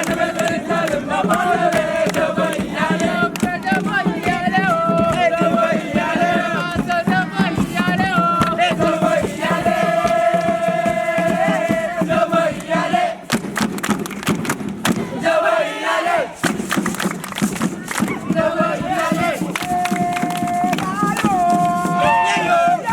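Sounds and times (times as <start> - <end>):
group singing a chant: 0.0 - 22.9.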